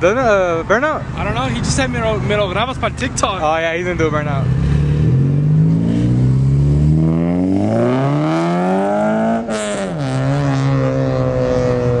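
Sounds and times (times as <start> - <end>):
engine revving hard: 4.4 - 12.0.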